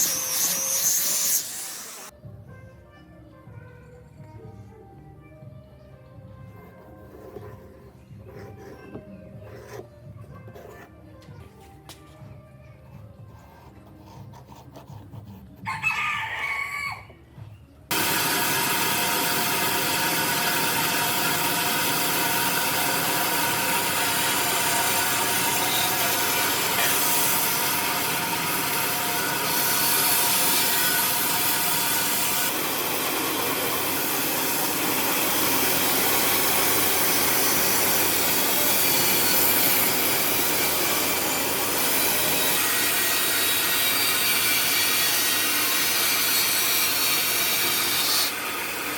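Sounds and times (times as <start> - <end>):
power tool whining on wood: 0.0 - 2.1, 17.9 - 46.4.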